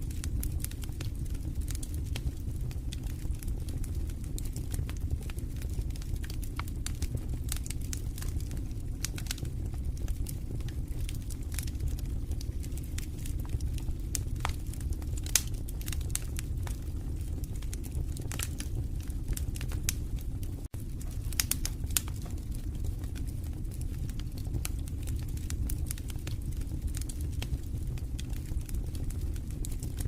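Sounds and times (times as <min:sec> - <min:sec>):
fire crackling and popping: 0:00.0 - 0:30.0
low rumble of flames: 0:00.0 - 0:30.0.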